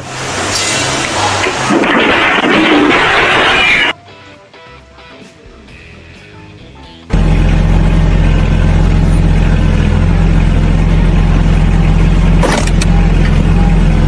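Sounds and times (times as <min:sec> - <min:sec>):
loud engine running: 0:07.1 - 0:14.0.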